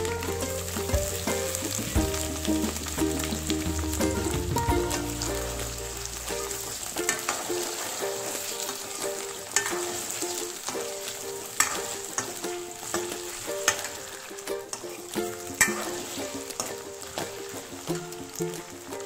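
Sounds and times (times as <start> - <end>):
potatoes sizzling in hot oil: 0.0 - 19.0
steel ladle clinking and scraping pan: 4.9 - 18.8.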